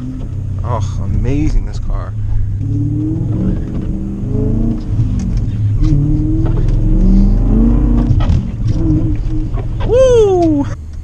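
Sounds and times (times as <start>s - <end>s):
loud car engine accelerating: 0.0s - 10.7s.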